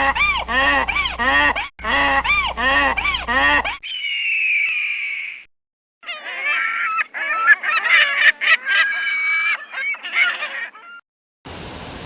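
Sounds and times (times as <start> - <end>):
honking bird calls: 6.0 - 11.0.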